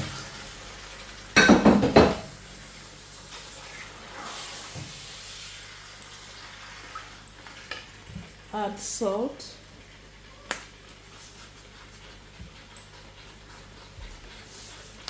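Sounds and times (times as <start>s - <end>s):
food sizzling in oil: 0.0s - 15.0s
pot and utensils clattering: 1.4s - 2.4s.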